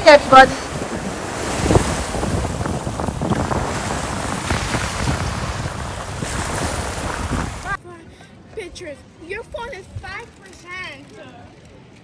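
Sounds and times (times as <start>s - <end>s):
sea waves washing: 0.0s - 7.8s
wind buffeting microphone: 0.0s - 7.8s.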